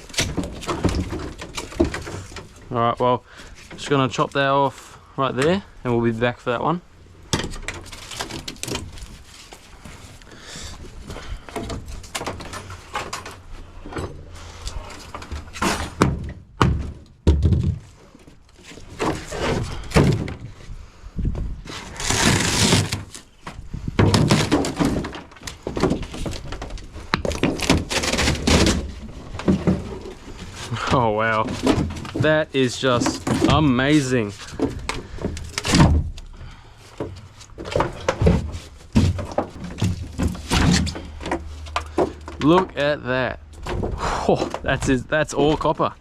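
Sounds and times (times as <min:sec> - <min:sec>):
knocks and clunks of fridge parts: 0:15.2 - 0:17.9, 0:19.0 - 0:20.6, 0:23.5 - 0:30.1, 0:30.8 - 0:42.7
scraping or tearing: 0:21.6 - 0:23.4, 0:27.4 - 0:35.9.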